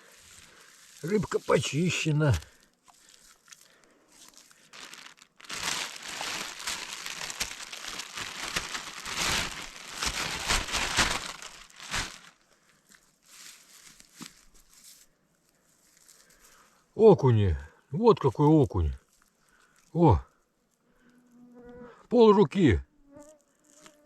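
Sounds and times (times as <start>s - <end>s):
crinkling and rustling: 0.0s - 15.1s.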